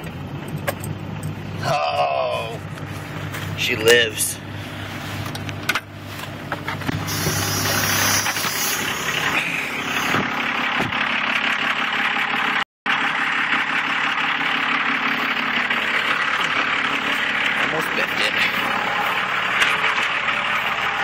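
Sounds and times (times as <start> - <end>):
diesel engine clattering: 0.0 - 21.0.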